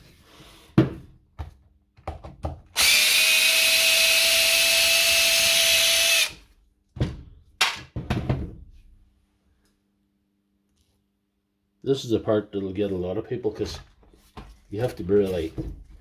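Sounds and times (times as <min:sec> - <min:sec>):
electric screwdriver motor running: 0:02.8 - 0:06.4.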